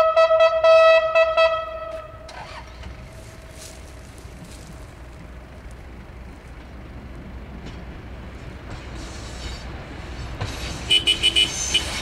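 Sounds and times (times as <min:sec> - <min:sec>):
train running rumble: 0:00.0 - 0:12.0
rail hiss: 0:07.4 - 0:12.0.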